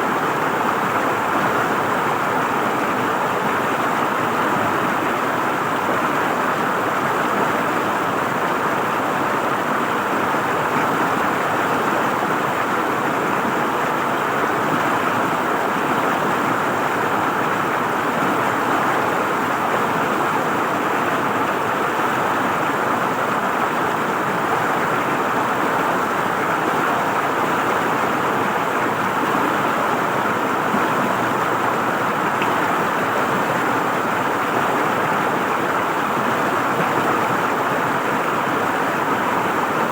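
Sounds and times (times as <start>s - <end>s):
river water flowing and gurgling: 0.0s - 39.9s.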